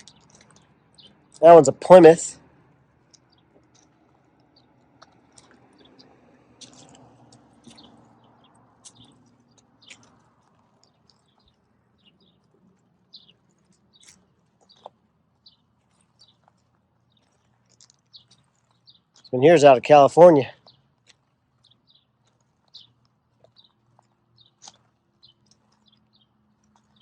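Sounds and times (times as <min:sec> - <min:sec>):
high bird chirps: 0:00.0 - 0:19.8.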